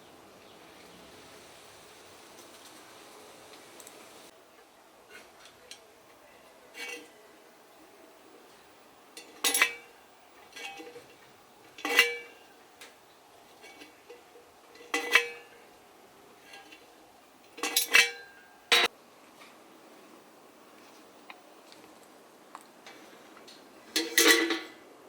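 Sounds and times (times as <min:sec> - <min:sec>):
metal kettle clinking: 0:06.7 - 0:07.2, 0:09.1 - 0:15.8, 0:16.4 - 0:18.9, 0:23.9 - 0:24.8.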